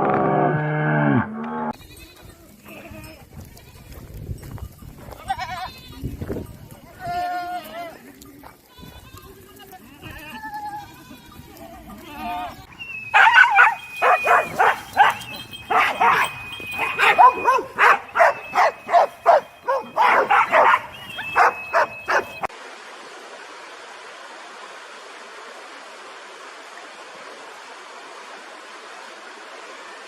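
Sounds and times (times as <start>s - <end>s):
animal cries: 12.0s - 22.5s.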